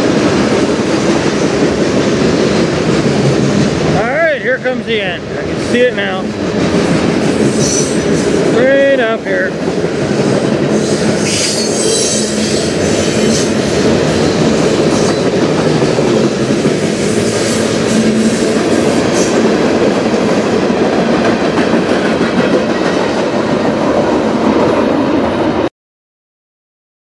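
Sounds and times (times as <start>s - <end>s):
freight train wheels rumbling: 0.0s - 25.7s.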